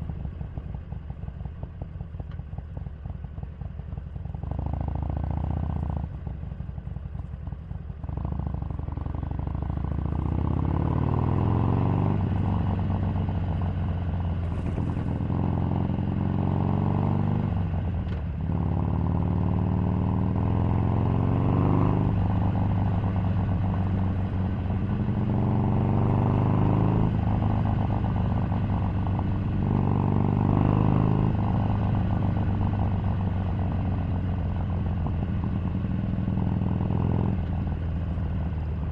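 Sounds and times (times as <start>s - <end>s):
motorcycle engine shifting gears: 9.4s - 38.8s.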